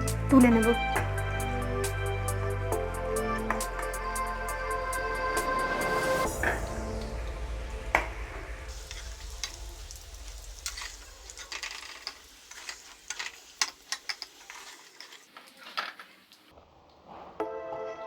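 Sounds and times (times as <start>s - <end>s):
potatoes sizzling in oil: 8.6s - 16.5s
spatula clicking and scraping: 10.6s - 16.2s.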